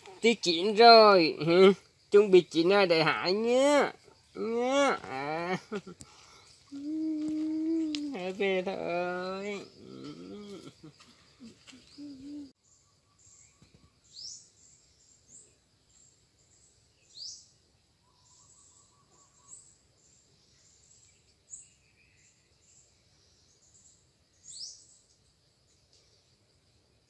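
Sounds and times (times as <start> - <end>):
faint high-pitched chirping: 0.0 - 27.0.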